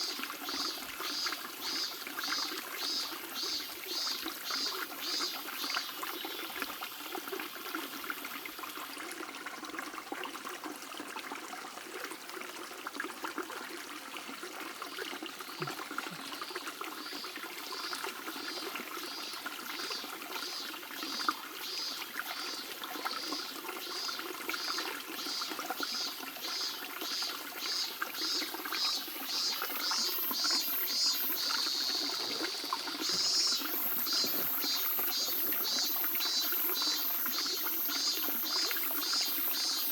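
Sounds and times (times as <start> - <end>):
stream babbling over stones: 0.0 - 39.9
high chirping: 33.0 - 39.9.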